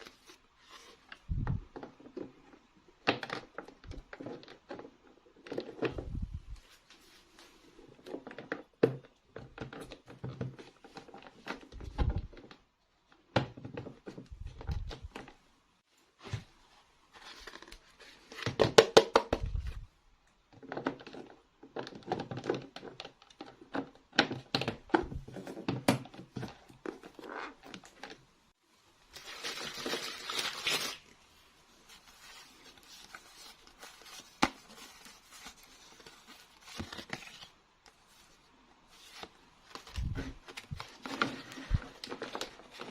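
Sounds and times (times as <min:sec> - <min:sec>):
packaging rustling and crinkling: 0:29.0 - 0:42.9
packaging tearing: 0:29.2 - 0:31.2.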